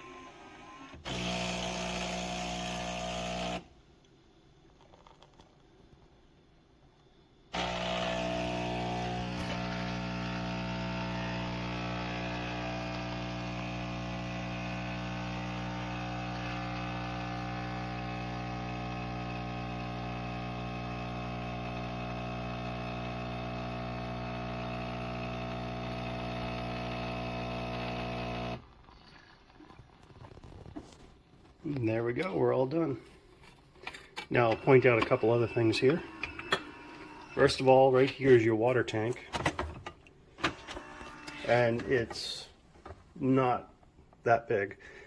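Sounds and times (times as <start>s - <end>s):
espresso machine pump buzzing: 0.0s - 3.7s, 7.5s - 28.7s, 34.4s - 37.8s, 40.4s - 42.4s.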